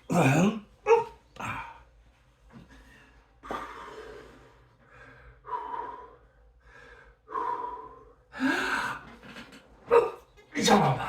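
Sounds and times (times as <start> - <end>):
man breathing hard: 2.7 - 9.2.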